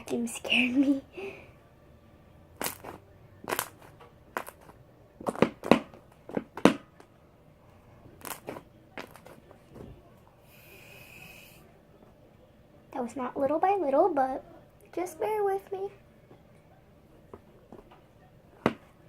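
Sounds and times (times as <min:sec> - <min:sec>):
slime popping and crackling: 0:02.6 - 0:05.8, 0:08.2 - 0:09.4.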